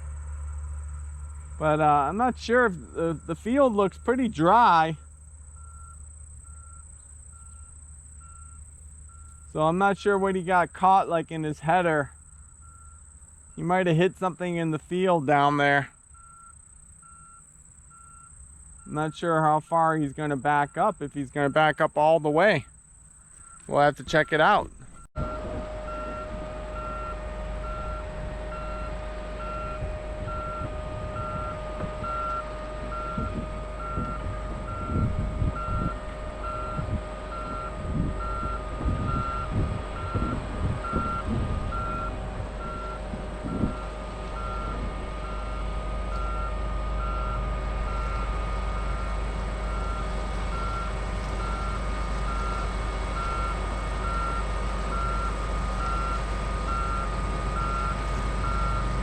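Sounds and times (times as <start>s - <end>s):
reverse alarm beeping: 0.0s - 11.4s, 12.1s - 59.0s
engine droning: 0.0s - 59.0s
low thumps: 24.6s - 46.4s.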